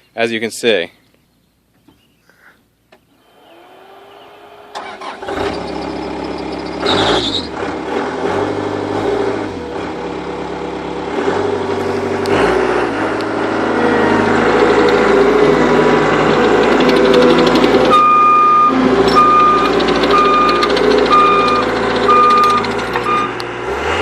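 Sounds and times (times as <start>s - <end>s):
starter motor whine: 3.2s - 7.5s, 13.8s - 23.5s
diesel engine running: 3.4s - 24.0s.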